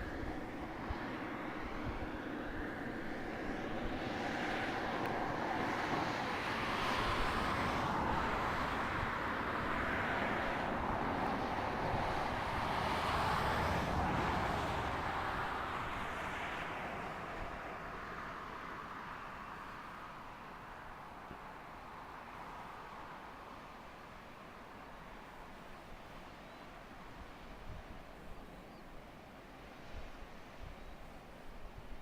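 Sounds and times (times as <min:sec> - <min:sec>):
distant rocket engines roaring: 0:00.0 - 0:19.9.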